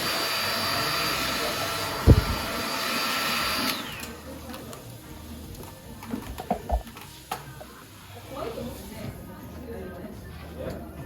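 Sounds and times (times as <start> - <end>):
hair dryer blowing: 0.0 - 4.6.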